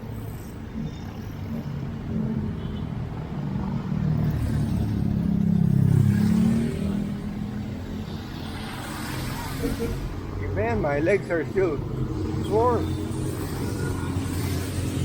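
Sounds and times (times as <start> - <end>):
motor vehicle passing by: 3.1 - 15.0.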